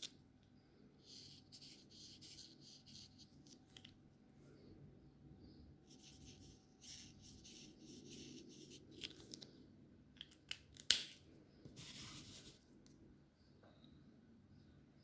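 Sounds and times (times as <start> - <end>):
marker scratching on paper: 1.0 - 3.4, 5.9 - 8.8.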